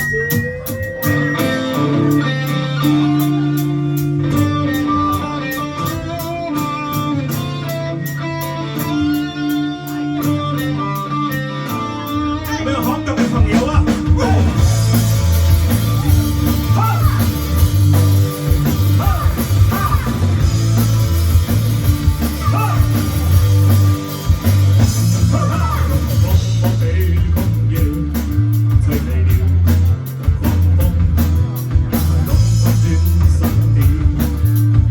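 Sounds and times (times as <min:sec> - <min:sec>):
bass guitar: 0:00.0 - 0:34.9
drum kit: 0:00.0 - 0:34.9
electric guitar: 0:00.0 - 0:34.9
person singing: 0:12.5 - 0:17.6, 0:18.7 - 0:20.4, 0:22.2 - 0:23.4, 0:25.0 - 0:31.5, 0:32.3 - 0:34.7.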